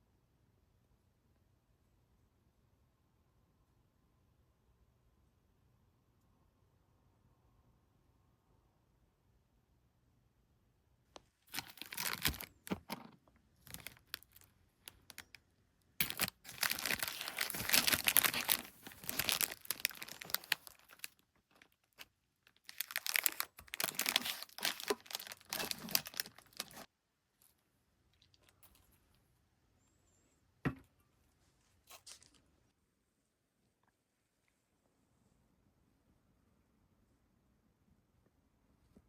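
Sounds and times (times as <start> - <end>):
packaging crinkling and tearing: 11.5 - 15.4, 16.0 - 26.9.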